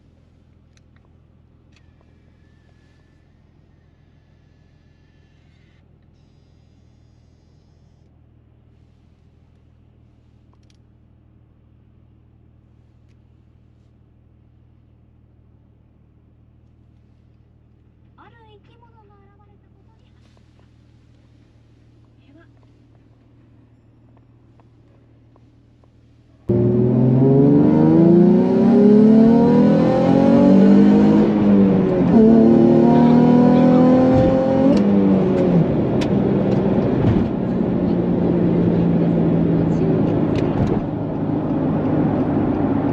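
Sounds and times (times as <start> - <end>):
car engine idling: 8.8 - 29.4
car engine revving: 26.5 - 42.9.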